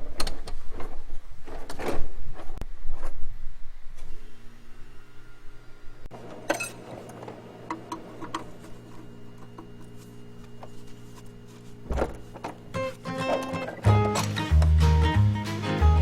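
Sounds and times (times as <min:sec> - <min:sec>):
steady mechanical hum: 0:00.0 - 0:14.8.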